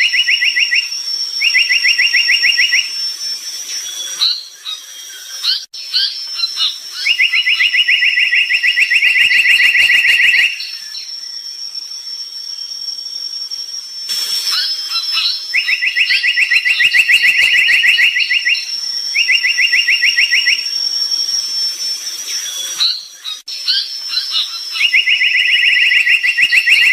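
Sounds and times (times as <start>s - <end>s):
bird trilling: 0.0s - 12.8s, 14.1s - 26.9s
short high bird chirps: 14.1s - 20.8s.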